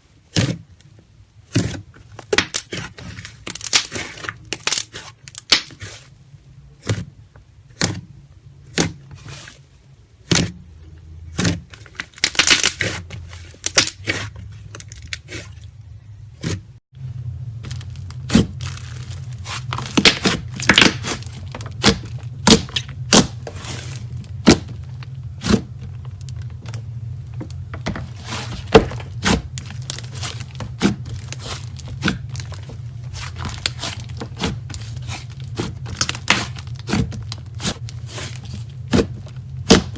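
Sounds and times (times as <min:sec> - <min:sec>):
low hum: 0:14.3 - 0:39.9.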